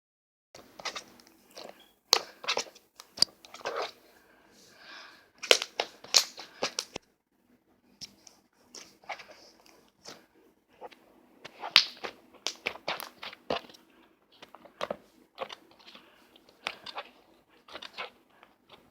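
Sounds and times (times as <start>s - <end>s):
slime crunching and popping: 11.5s - 13.8s.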